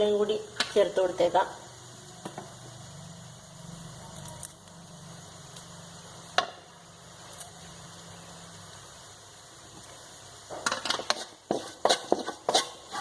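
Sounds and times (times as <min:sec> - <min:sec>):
spatula tapping a pan: 0:10.5 - 0:12.8.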